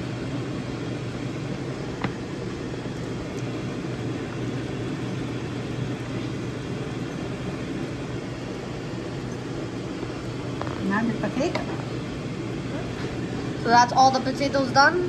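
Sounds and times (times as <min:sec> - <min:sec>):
low machine drone: 0:00.0 - 0:07.7.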